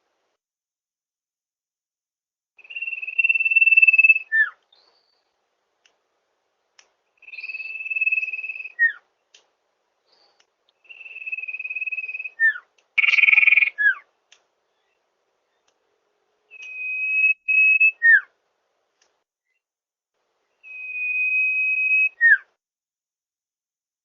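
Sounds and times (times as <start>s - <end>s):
bird whistling song: 2.6s - 5.3s, 7.2s - 9.1s, 10.1s - 14.1s, 16.4s - 18.4s, 20.6s - 22.6s.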